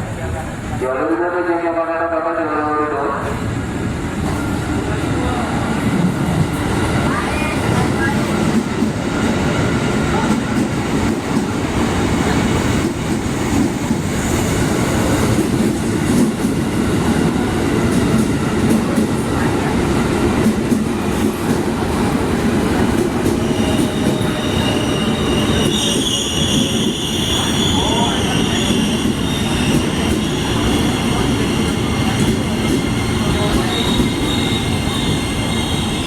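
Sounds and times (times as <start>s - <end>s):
train rumbling past: 0.0s - 36.0s
high-pitched wheel squeal: 23.5s - 28.9s.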